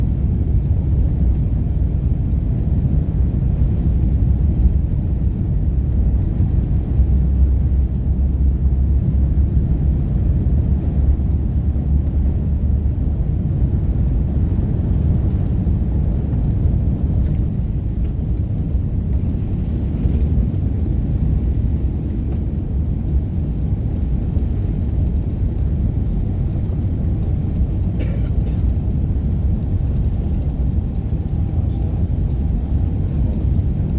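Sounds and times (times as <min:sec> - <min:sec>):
jet engines rumbling: 0:00.0 - 0:33.9.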